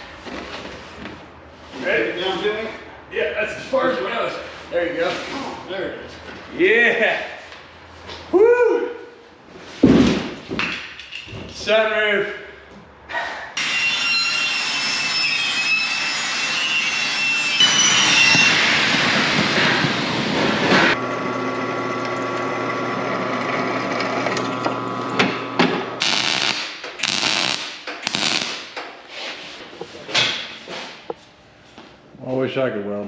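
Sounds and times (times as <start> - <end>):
power tool high whine: 13.6 - 19.6.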